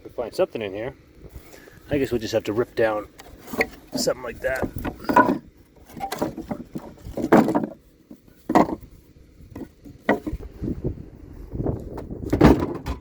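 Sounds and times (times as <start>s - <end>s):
wooden boards knocking and clattering: 3.2s - 8.9s, 9.5s - 10.5s, 11.9s - 13.0s.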